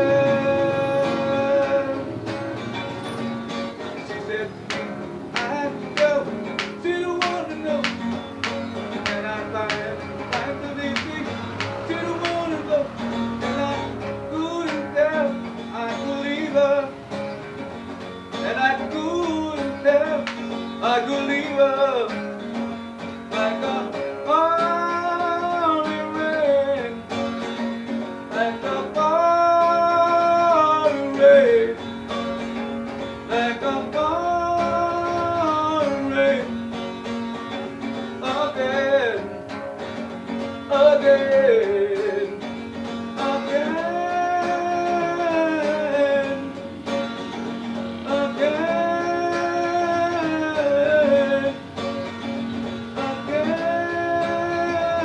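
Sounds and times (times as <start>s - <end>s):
acoustic guitar: 0.0s - 55.0s
man singing a ballad: 20.8s - 22.2s, 23.3s - 27.0s, 28.3s - 31.8s, 33.3s - 36.5s, 38.2s - 39.3s, 40.7s - 42.4s, 43.2s - 46.6s, 48.0s - 51.7s, 52.9s - 55.0s.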